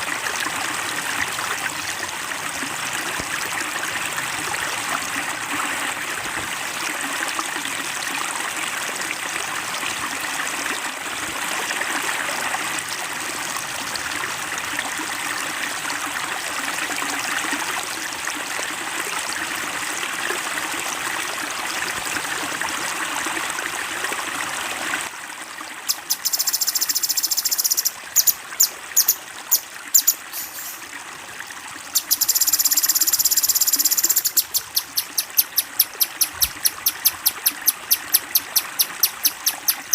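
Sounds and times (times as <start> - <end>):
stream water trickling: 0.0 - 39.9
songbird calls and trills: 25.9 - 30.8, 32.0 - 39.9.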